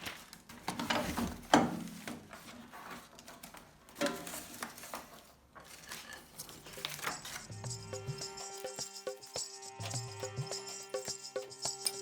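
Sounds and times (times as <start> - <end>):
object handling noises: 0.0 - 7.6.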